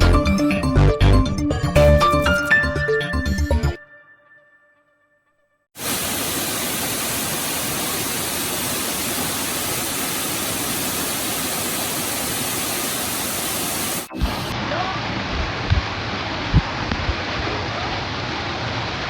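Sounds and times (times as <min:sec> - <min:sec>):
waterfall rushing: 0:05.8 - 0:14.6.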